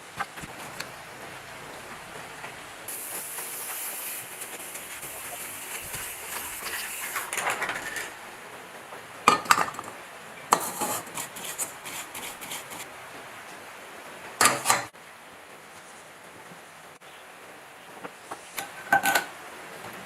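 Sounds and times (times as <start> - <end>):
hiss: 2.9 - 8.0.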